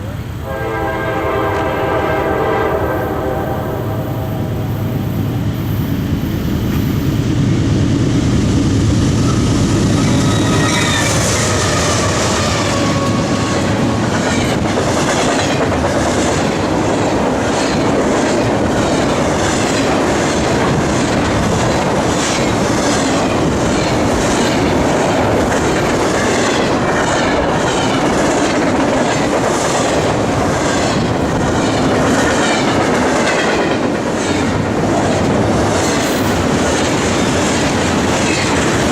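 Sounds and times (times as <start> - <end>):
locomotive horn: 0.4 - 4.2
freight train wheels clicking over rails: 6.2 - 38.9
squealing wheel flanges: 10.0 - 11.4.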